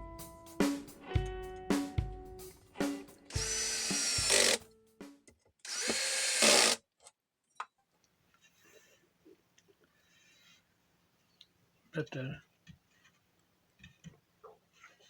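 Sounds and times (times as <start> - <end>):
percussive hits in background music: 0.0 - 4.4
electric drill running: 3.3 - 4.6, 5.7 - 6.8.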